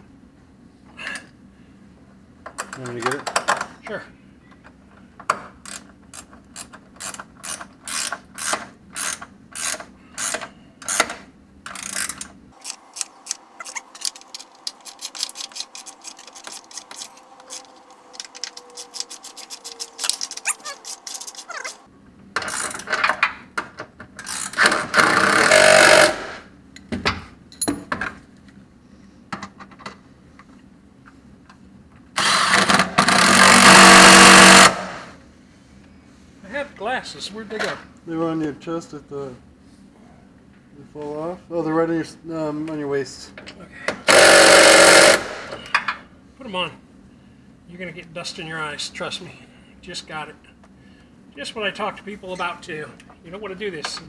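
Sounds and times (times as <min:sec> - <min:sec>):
hand ratchet clicking: 0:05.6 - 0:11.1, 0:11.7 - 0:21.8
noisy rattling burst: 0:32.2 - 0:35.0.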